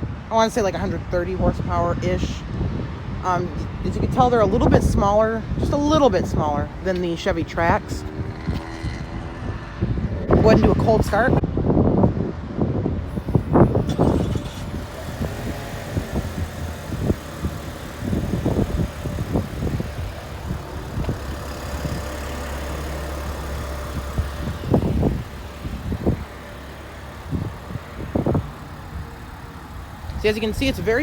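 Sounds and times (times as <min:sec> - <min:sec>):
wind gusts on microphone: 0:00.0 - 0:31.0
car engine idling: 0:13.1 - 0:31.0.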